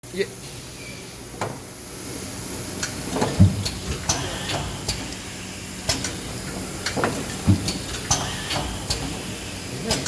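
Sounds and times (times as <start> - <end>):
machine hissing: 2.8 - 10.0.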